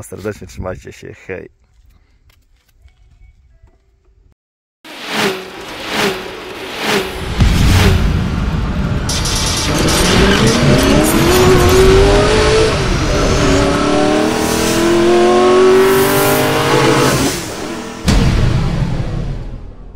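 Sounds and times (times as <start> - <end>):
race car engine accelerating: 4.9 - 18.1
sudden loud hit: 7.0 - 12.9, 18.0 - 19.9.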